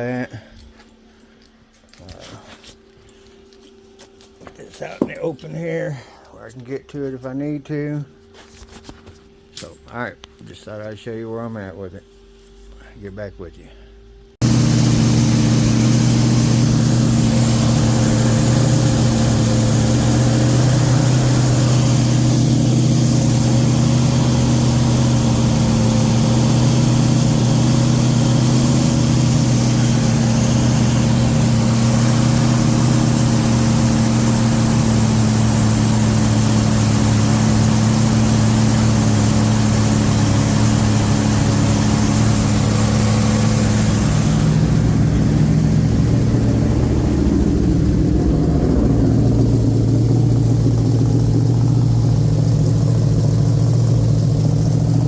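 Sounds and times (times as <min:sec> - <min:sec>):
car engine running steadily: 0:14.2 - 0:55.0.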